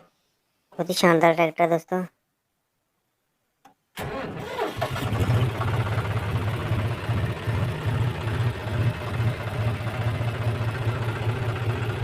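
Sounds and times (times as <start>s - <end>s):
diesel tractor engine idling: 4.5s - 12.0s.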